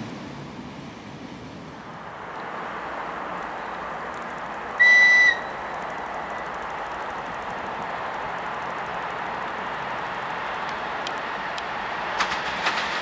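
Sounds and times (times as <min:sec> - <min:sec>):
approaching train noise: 0:00.0 - 0:13.0
locomotive whistle blast: 0:04.8 - 0:05.7.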